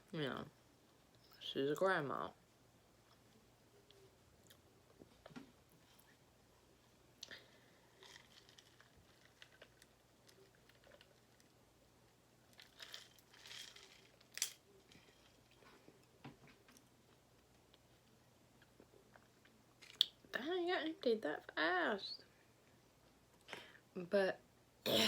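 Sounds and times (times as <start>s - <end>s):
crunching and chewing: 7.2s - 11.6s, 12.4s - 15.8s
crinkly rustle: 7.4s - 11.6s, 12.4s - 16.0s.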